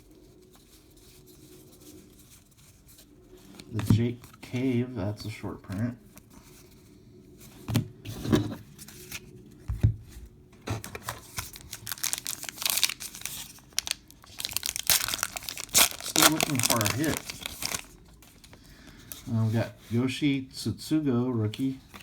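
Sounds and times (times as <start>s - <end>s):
wrapper tearing and crinkling: 11.2s - 18.5s.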